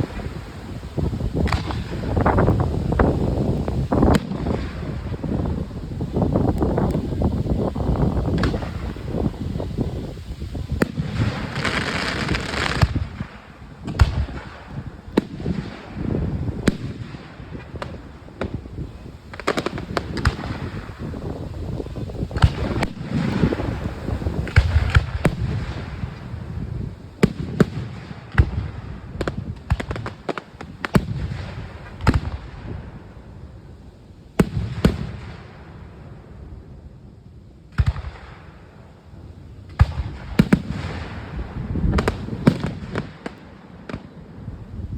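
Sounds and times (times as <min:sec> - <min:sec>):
firework shells bursting: 0:00.0 - 0:26.4.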